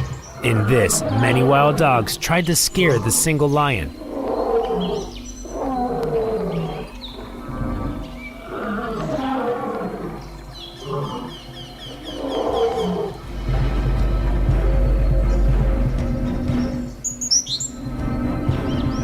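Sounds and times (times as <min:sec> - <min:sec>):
lion snarling and growling: 0:00.0 - 0:02.2, 0:04.0 - 0:13.3.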